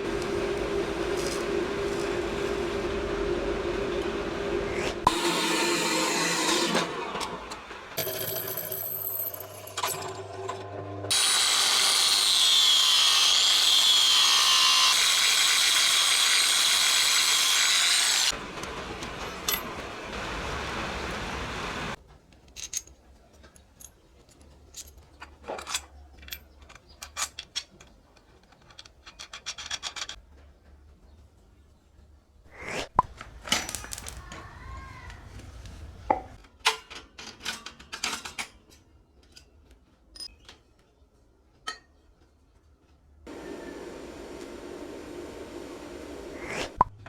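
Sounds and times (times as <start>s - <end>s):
power tool whining: 0.0s - 7.9s, 11.1s - 22.0s, 43.3s - 46.8s.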